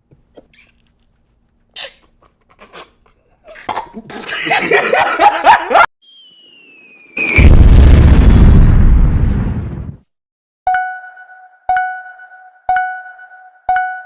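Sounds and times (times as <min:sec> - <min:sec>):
whistle falling in pitch: 0:06.0 - 0:07.5.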